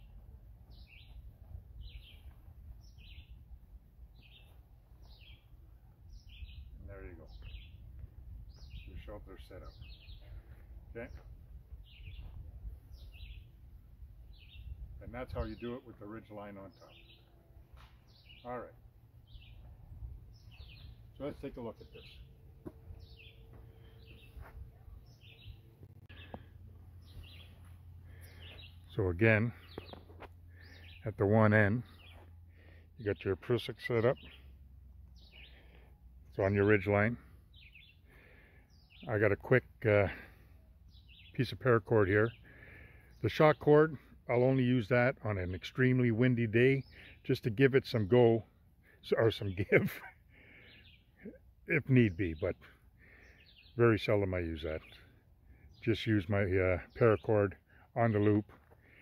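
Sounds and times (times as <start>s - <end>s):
small bird calling: 16.6s - 28.9s, 29.5s - 31.1s, 35.2s - 36.0s, 37.4s - 39.1s, 40.2s - 41.4s, 49.2s - 51.5s, 52.2s - 54.1s.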